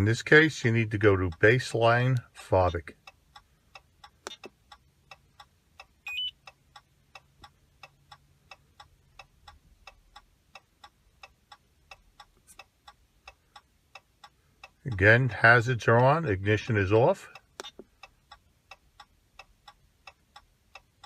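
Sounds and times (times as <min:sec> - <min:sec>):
short electronic beep: 0:06.0 - 0:06.4.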